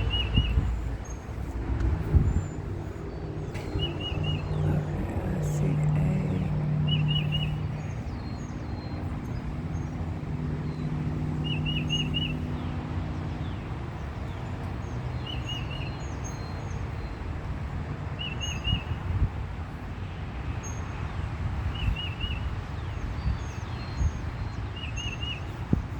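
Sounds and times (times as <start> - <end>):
steady low rumble: 0.0 - 15.4.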